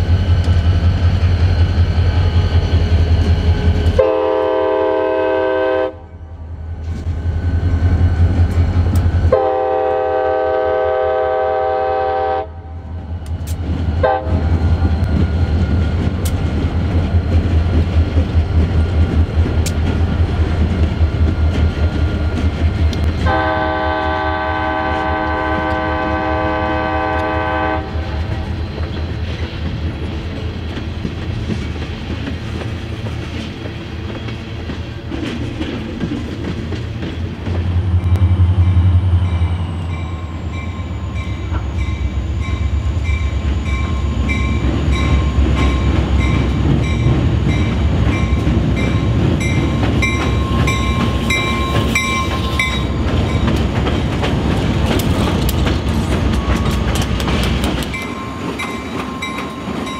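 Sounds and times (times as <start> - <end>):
diesel locomotives droning: 0.0 - 59.9
locomotive air horn: 3.9 - 6.2, 9.3 - 12.7, 14.0 - 14.5, 23.2 - 28.2
wheels clattering on rails: 13.3 - 23.7, 28.0 - 59.9.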